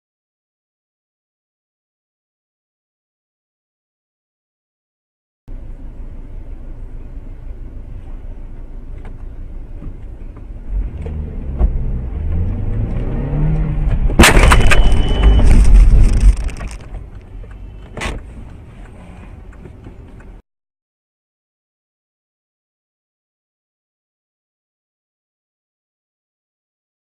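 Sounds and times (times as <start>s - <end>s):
car engine and road noise: 5.5s - 20.4s
car crash impact and smashing: 14.1s - 16.9s
sharp bang: 14.2s - 16.5s.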